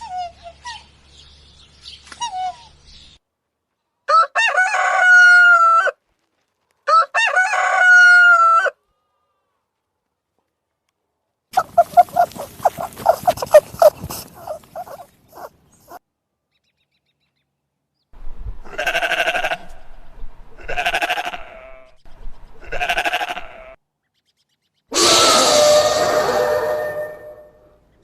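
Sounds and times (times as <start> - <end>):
farm animal bleating: 11.6 - 15.5, 18.7 - 19.7, 20.6 - 22.0, 22.6 - 23.8
chicken clucking: 11.6 - 16.0.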